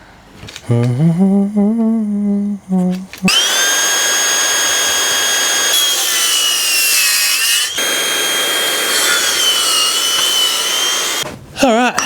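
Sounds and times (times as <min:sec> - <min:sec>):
power saw cutting wood: 0:03.3 - 0:11.2.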